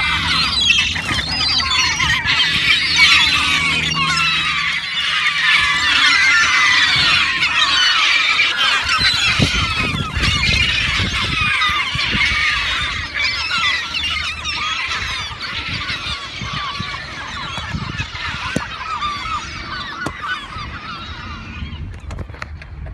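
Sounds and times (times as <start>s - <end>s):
flock of birds calling: 0.0s - 22.5s.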